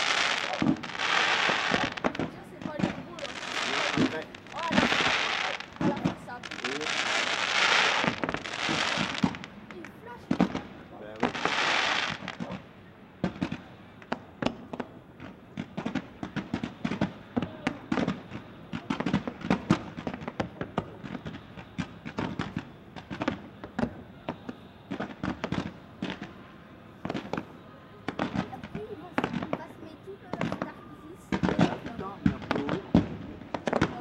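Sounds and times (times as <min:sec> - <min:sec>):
fireworks bursts and bangs: 0:00.0 - 0:34.0.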